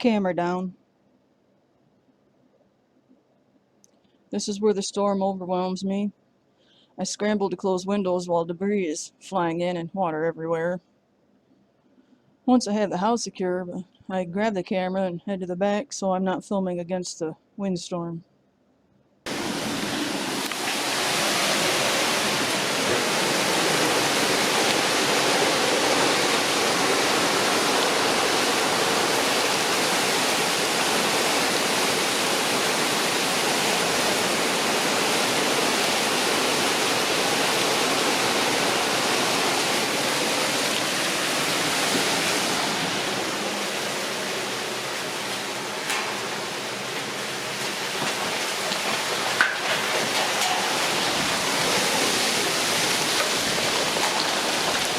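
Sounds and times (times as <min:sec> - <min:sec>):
heavy rain pouring: 0:19.3 - 0:54.9.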